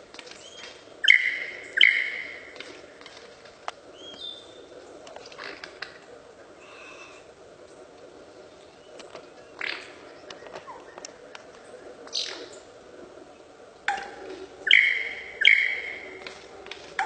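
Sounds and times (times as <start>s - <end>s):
loud sharp bird calls: 0.3s - 2.8s, 13.9s - 17.0s
soft bird chirps: 3.9s - 4.8s, 14.6s - 16.3s.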